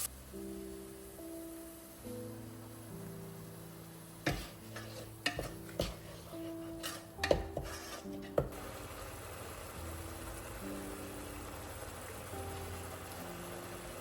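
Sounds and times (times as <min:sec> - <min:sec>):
soft background music: 0:00.0 - 0:14.0
dishes and utensils clinking: 0:04.3 - 0:08.5.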